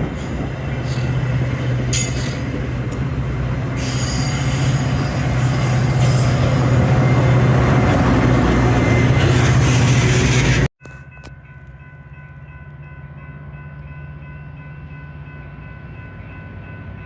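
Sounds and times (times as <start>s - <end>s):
diesel locomotive engine drone: 0.0s - 17.0s
train wheels squealing: 3.7s - 10.7s.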